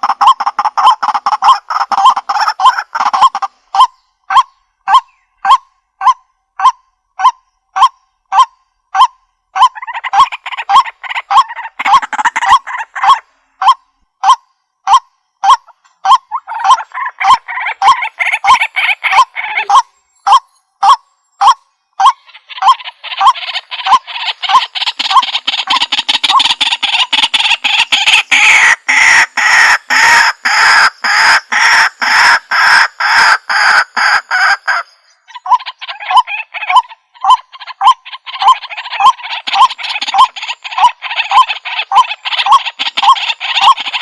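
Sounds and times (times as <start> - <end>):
waterhen calling through speaker: 9.6 - 44.0.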